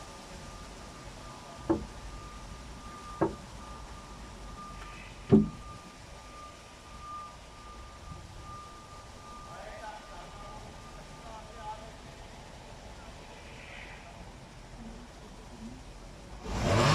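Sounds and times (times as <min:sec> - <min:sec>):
faint steady high tone: 0:00.0 - 0:16.0
heavy thuds: 0:05.3 - 0:05.6.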